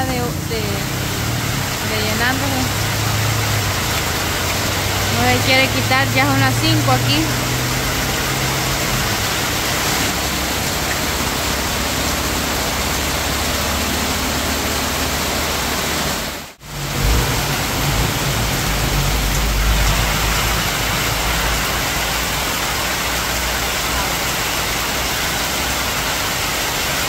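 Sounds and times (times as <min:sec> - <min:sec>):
heavy rain: 0:00.0 - 0:27.0
low rumble: 0:16.6 - 0:23.5.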